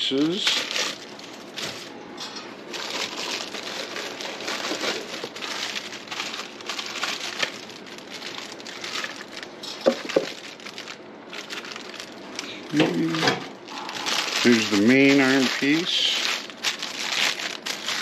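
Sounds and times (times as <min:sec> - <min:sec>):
plastic bags crinkling: 0:00.1 - 0:02.0, 0:02.6 - 0:18.0.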